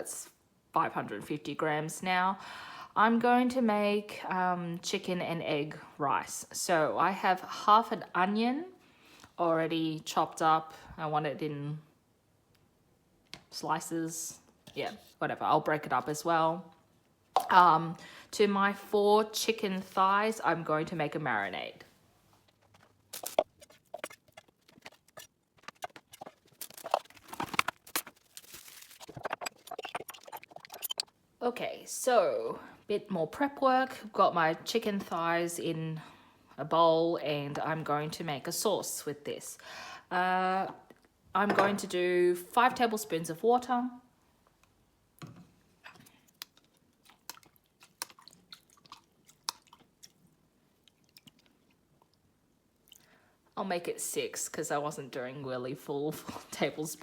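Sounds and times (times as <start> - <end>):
rustles and scrapes: 22.3 - 31.1.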